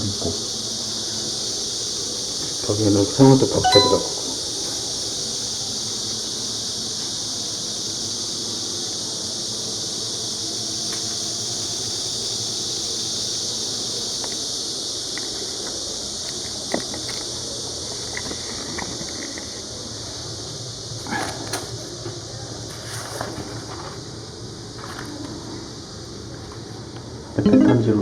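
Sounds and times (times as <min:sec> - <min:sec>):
high-pitched buzzing hiss: 0:00.0 - 0:21.0.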